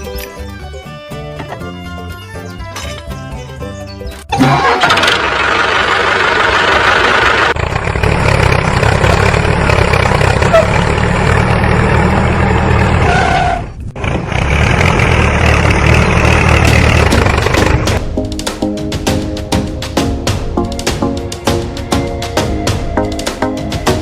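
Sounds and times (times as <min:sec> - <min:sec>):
tractor engine rumbling: 0:00.0 - 0:18.1.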